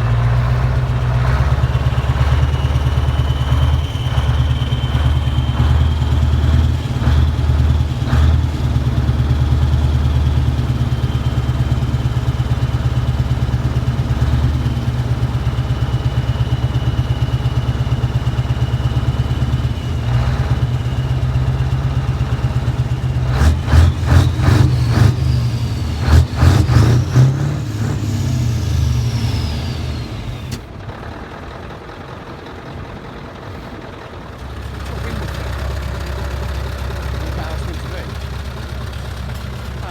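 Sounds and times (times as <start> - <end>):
truck diesel engine idling and revving: 0.0 - 39.9
high turbo whistle: 1.7 - 6.5.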